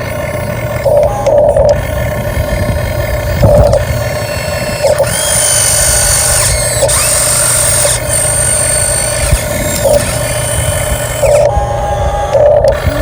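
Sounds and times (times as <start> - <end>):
toy truck electric motor whining: 0.0 - 13.0.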